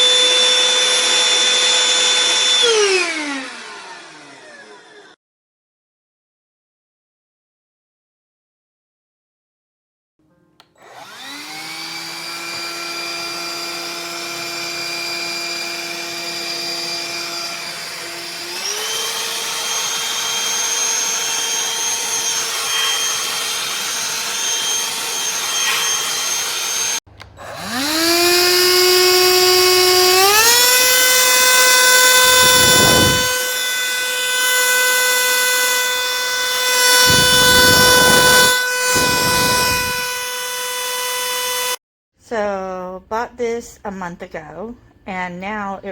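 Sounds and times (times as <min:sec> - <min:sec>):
handheld vacuum whining: 0:00.0 - 0:05.2, 0:10.8 - 0:41.8
rushes of air: 0:32.4 - 0:33.3.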